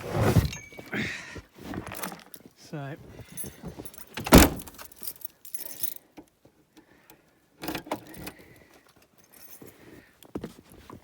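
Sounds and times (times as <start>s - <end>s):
metallic clinking and rattling: 3.3s - 6.1s.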